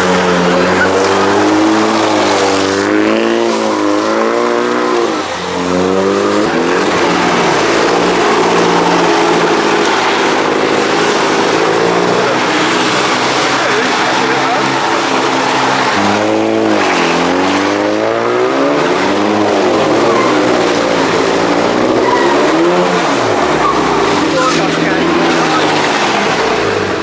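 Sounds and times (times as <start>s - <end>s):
tyres spinning hiss: 0.0s - 17.3s
car engine revving hard: 0.0s - 27.0s.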